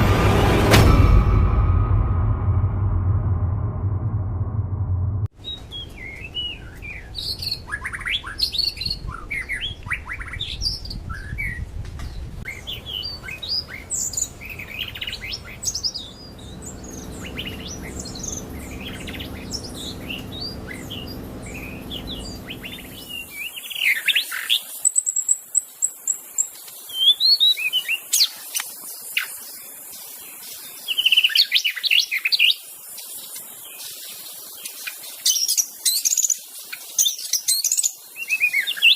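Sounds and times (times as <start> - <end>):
low background rumble: 0.0 - 5.3, 14.1 - 23.3.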